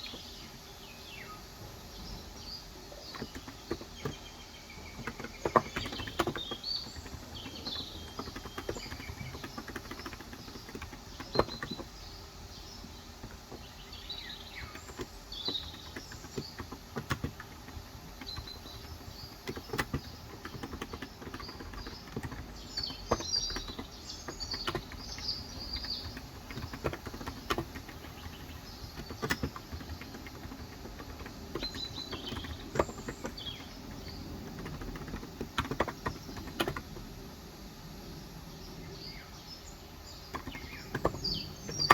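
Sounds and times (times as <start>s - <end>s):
birds chirping: 0.0s - 41.9s
keyboard keystrokes: 3.0s - 12.0s, 14.6s - 37.0s.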